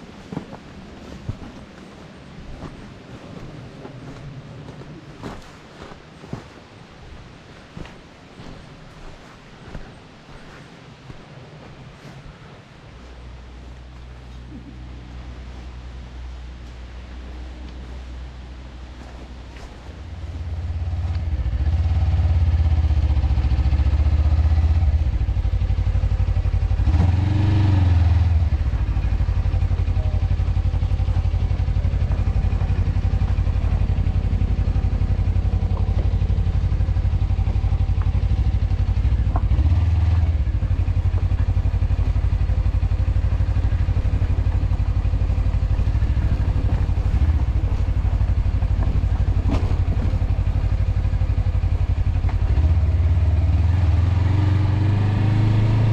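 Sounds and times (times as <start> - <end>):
wind rumble on microphone: 0.0 - 52.6
motorcycle engine running: 17.8 - 55.9.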